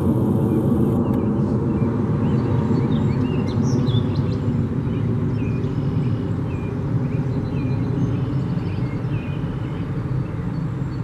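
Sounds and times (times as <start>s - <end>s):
loud low rumble: 0.0s - 2.2s.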